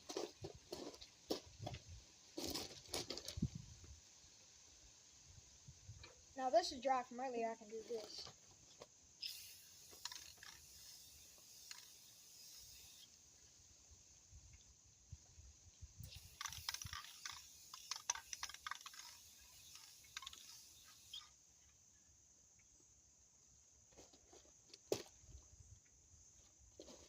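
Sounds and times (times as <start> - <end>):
light hiss: 2.0 - 21.8.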